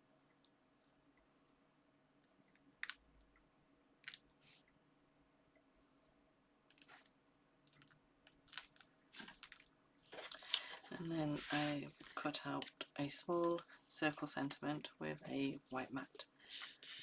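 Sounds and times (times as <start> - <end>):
paper and card rustling: 8.5 - 12.8.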